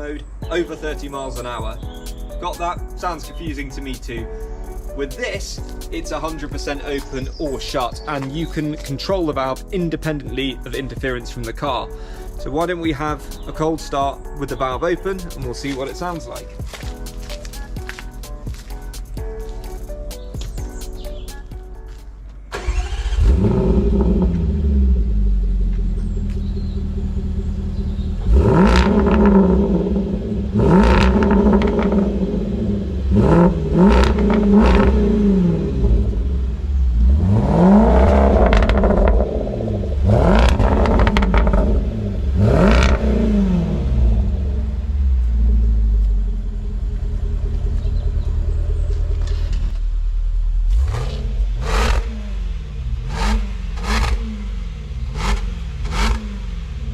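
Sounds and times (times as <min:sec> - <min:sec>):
car engine idling: 0:10.6 - 0:56.9
engine throttle blips: 0:22.5 - 0:56.9.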